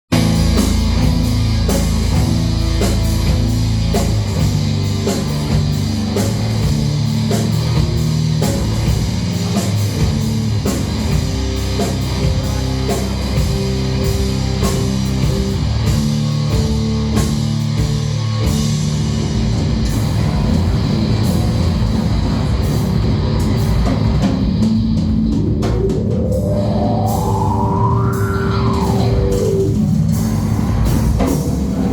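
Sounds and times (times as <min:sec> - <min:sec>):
rock band playing: 0:00.1 - 0:31.9
note gliding upward: 0:25.8 - 0:29.9.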